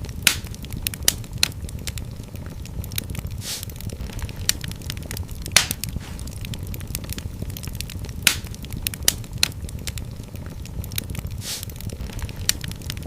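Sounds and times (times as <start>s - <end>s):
fire pop: 0.0s - 13.0s
low fire rumble: 0.0s - 13.0s
wood fire crackling: 0.0s - 13.0s
brief fire hiss: 3.4s - 3.7s, 11.4s - 11.7s.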